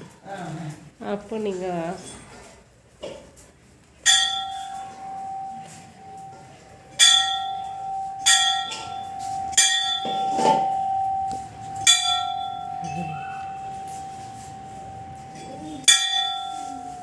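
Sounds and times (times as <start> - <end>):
temple bell ringing: 4.0 - 17.0.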